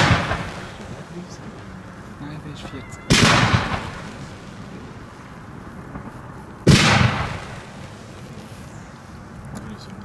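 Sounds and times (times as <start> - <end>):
loud firework bang: 0.0 - 0.9, 3.1 - 4.6, 5.9 - 8.0.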